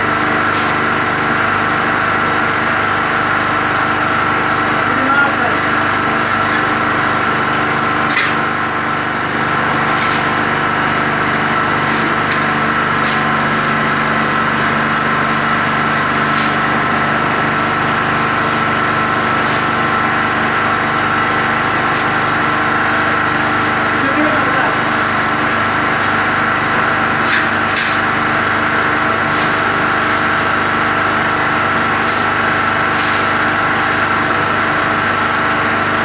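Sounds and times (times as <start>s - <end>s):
concrete mixer drone: 0.0s - 36.0s.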